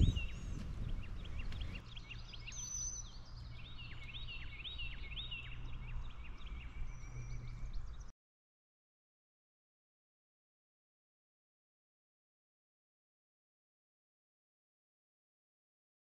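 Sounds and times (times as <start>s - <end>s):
small birds chirping: 0.0s - 8.1s.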